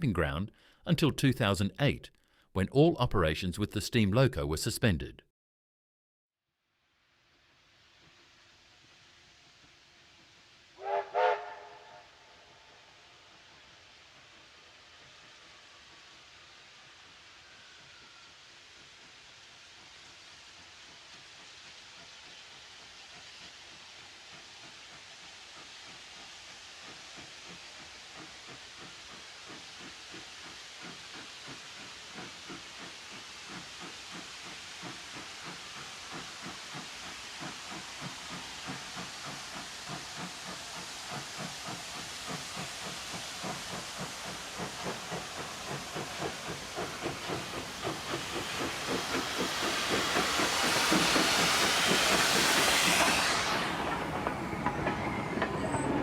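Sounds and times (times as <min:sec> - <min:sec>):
loud steam hiss: 0:07.4 - 0:56.0
steam locomotive chuffing: 0:07.9 - 0:56.0.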